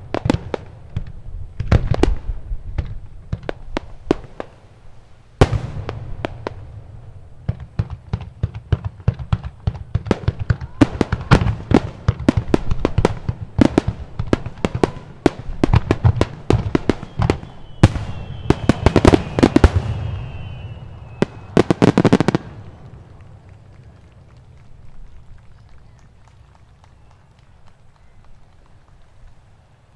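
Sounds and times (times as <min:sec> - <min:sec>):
fireworks bangs: 0:00.0 - 0:29.2
falling firework whistle: 0:14.6 - 0:24.1.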